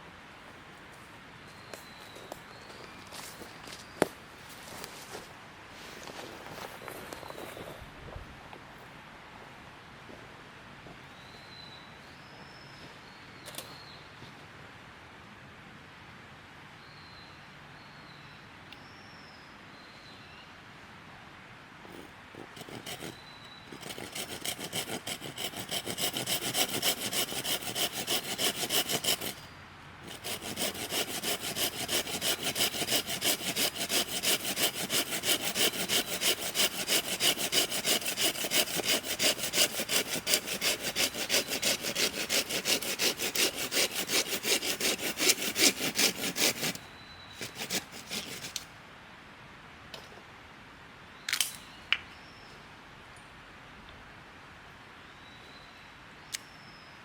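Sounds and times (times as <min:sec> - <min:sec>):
hand saw cutting wood: 0:21.9 - 0:46.8, 0:47.4 - 0:48.6.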